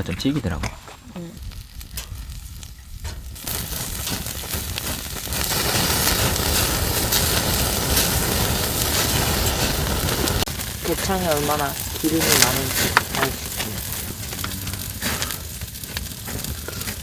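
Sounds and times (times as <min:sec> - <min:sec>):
meat sizzling on a grill: 0:01.3 - 0:17.0.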